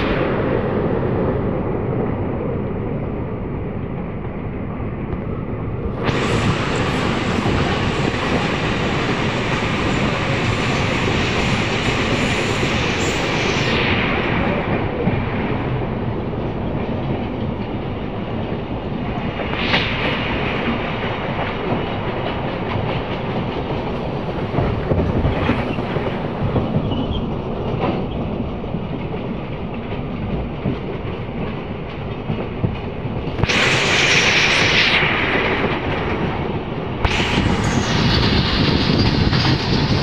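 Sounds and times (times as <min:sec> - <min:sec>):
rail joint clicks: 0:00.0 - 0:40.0
train wheels rumbling on rails: 0:00.0 - 0:40.0
rushing hiss: 0:06.0 - 0:16.1, 0:33.4 - 0:40.0.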